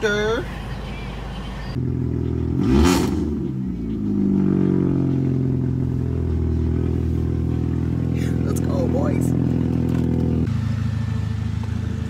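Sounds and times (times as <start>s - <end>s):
car engine revving and running: 0.0s - 12.0s.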